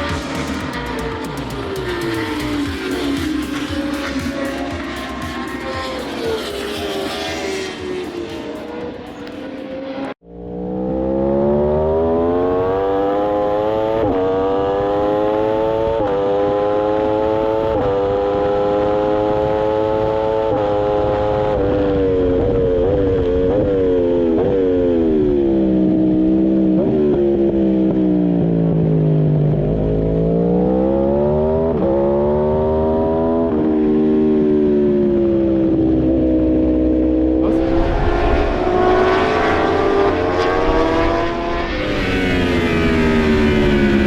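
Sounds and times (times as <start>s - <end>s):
wind rushing: 0.0s - 10.2s, 37.4s - 44.0s
motorcycle engine revving: 0.0s - 44.0s.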